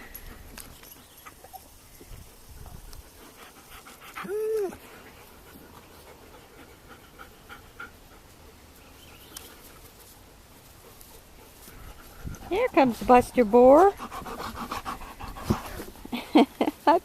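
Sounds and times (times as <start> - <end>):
dog panting: 0.2 - 8.8, 9.5 - 16.8
dog whining: 4.2 - 4.8.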